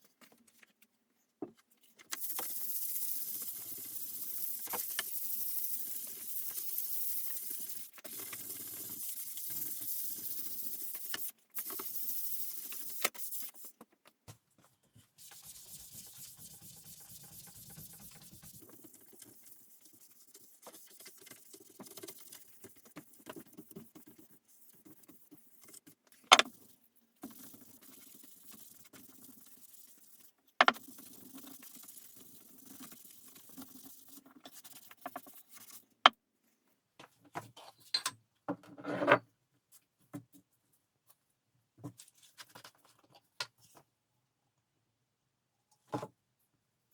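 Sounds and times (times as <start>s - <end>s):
rubbing and scratching on wood: 15.2s - 35.8s.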